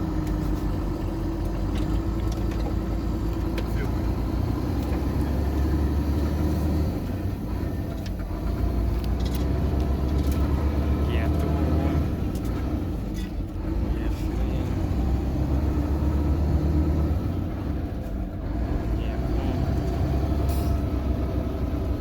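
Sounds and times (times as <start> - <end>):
truck diesel engine rumbling: 0.0 - 22.0.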